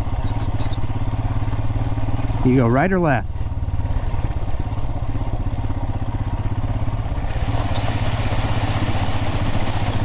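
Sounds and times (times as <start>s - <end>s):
motorcycle engine running: 0.0s - 10.0s
water rushing: 6.1s - 10.0s.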